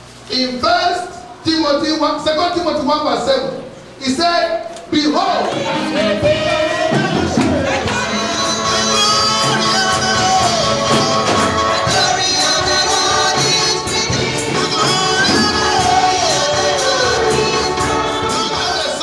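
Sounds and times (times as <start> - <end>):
gospel singing voices: 4.8 - 19.0
tambourine beat: 6.3 - 19.0.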